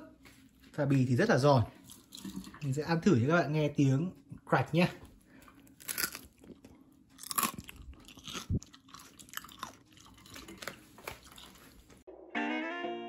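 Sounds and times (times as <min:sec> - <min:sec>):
crunching crispy pork skin: 0:05.7 - 0:11.8.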